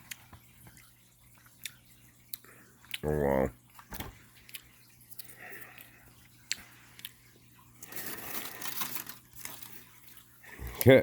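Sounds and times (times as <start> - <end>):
foil rustling: 7.8 - 10.2
foil wrapper crinkling: 7.8 - 10.3.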